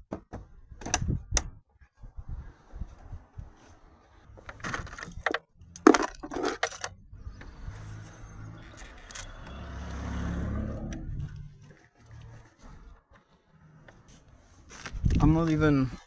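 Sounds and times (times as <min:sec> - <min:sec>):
small metal objects clinking: 0:04.9 - 0:07.0.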